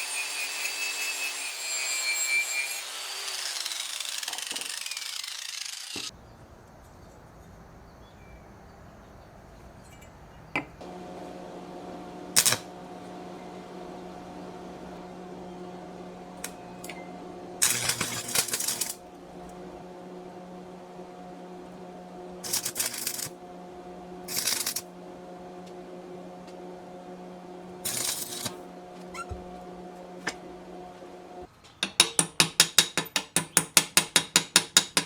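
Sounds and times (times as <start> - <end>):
power tool humming: 0.0 - 6.1, 10.8 - 31.5
power tool biting harshly: 2.4 - 6.1.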